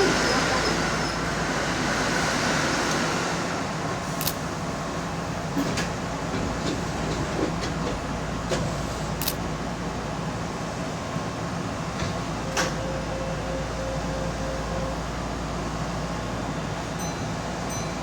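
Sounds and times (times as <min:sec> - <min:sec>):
electric train rumbling to a stop: 0:00.0 - 0:18.0
sharp clicks: 0:09.2 - 0:09.4.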